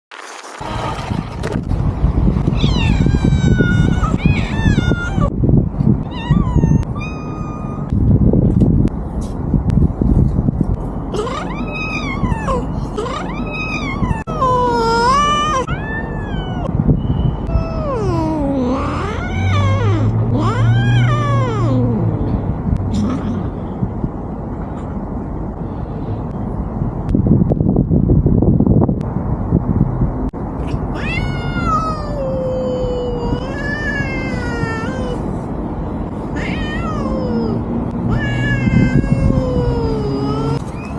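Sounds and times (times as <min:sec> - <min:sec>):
low rumble: 0:00.1 - 0:40.9
cat meowing: 0:02.6 - 0:05.3, 0:06.1 - 0:07.9, 0:11.2 - 0:16.7, 0:30.9 - 0:35.2, 0:36.4 - 0:40.6.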